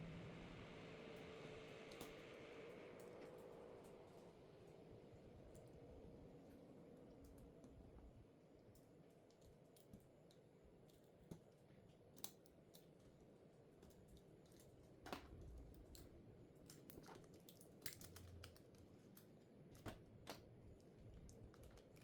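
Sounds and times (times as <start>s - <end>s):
small tools clicking on plastic: 8.7s - 13.1s, 13.8s - 20.5s.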